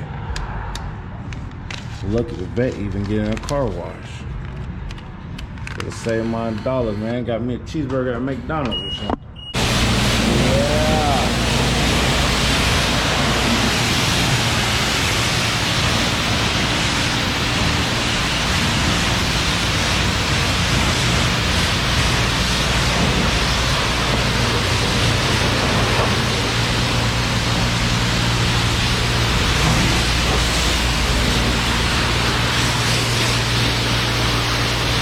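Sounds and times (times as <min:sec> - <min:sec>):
pressure washer water spraying: 0:09.6 - 0:35.0.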